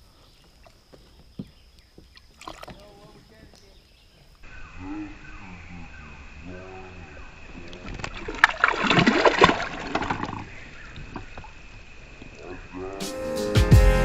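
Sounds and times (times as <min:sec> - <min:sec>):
water splashing and trickling: 0:01.8 - 0:03.9, 0:06.6 - 0:12.6
music: 0:13.0 - 0:14.0.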